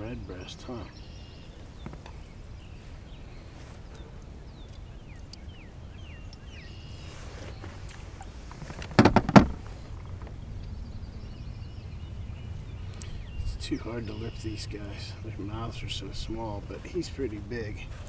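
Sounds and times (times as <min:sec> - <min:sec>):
low outdoor background: 0:00.0 - 0:18.0
knocks against canoe hull: 0:08.5 - 0:10.3.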